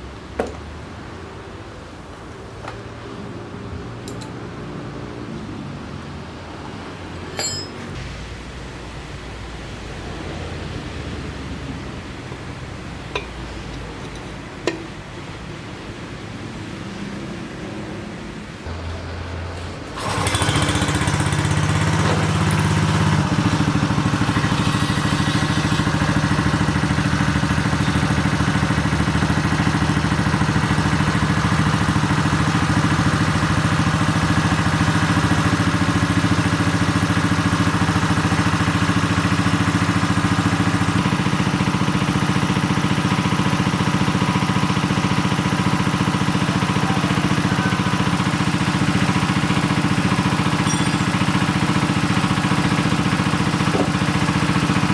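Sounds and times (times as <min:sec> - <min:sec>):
clattering engine running: 0:19.8 - 0:54.9.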